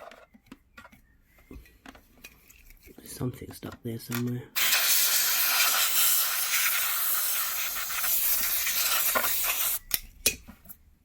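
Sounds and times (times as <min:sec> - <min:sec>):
compressed air hissing: 0:04.6 - 0:09.8.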